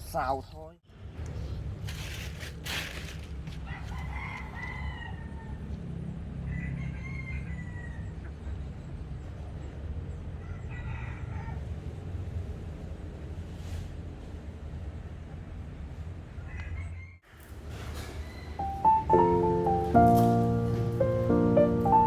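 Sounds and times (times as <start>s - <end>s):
rooster crowing: 3.6s - 8.2s, 10.4s - 11.7s, 16.4s - 17.2s.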